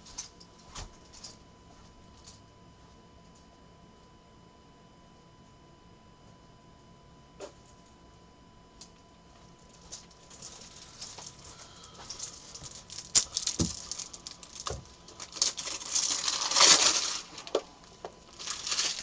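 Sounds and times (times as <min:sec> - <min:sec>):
rustling and sliding: 0:10.3 - 0:17.6, 0:18.4 - 0:19.0.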